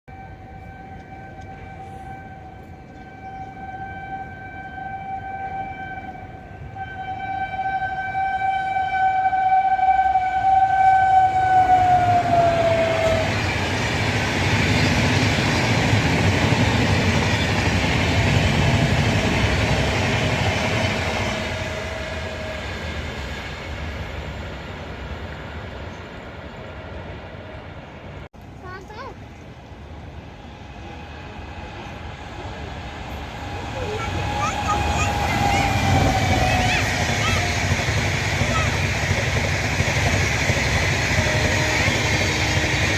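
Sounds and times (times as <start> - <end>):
train horn blast: 0.1 - 13.6, 18.2 - 22.9, 33.5 - 38.9, 41.0 - 42.9
rushing rumble of passing train: 0.1 - 42.9.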